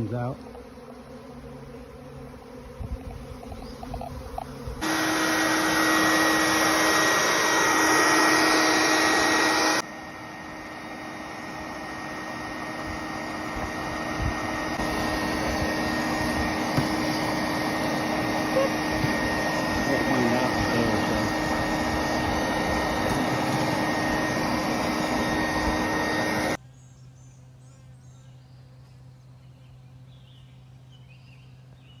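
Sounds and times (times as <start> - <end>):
swarming honeybees buzzing: 0.0 - 26.6.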